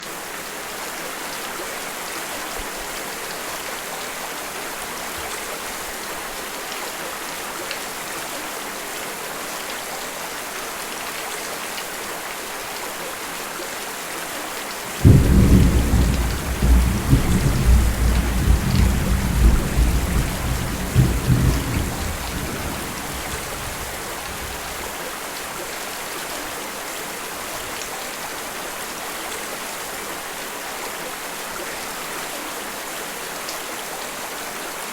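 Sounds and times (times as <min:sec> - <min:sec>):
steady rain: 0:00.0 - 0:34.9
thunder rumbling: 0:14.9 - 0:24.9.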